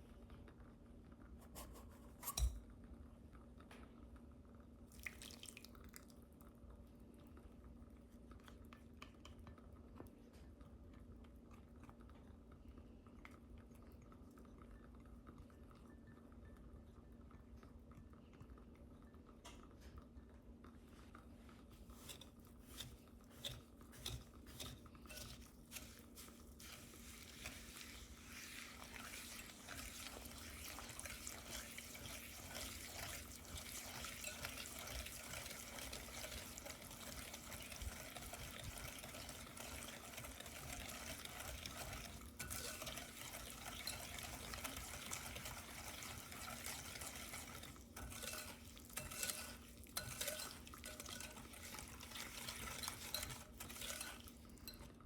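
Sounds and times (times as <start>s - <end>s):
utensil scraping a mixing bowl: 21.8s - 54.9s.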